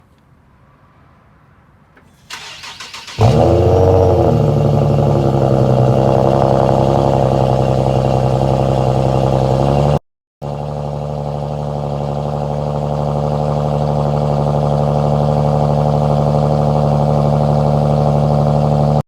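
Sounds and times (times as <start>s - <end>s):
starter motor cranking: 2.2s - 4.2s
car engine raspy idle: 2.2s - 19.0s.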